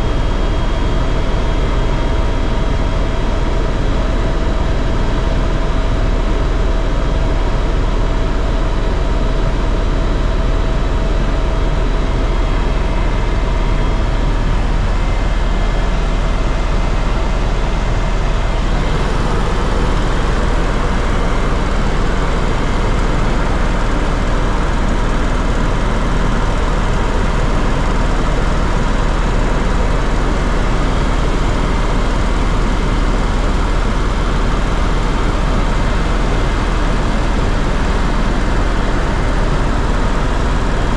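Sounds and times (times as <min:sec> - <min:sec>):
faint steady whines: 0:00.0 - 0:40.9
aircraft engines droning: 0:09.2 - 0:40.9.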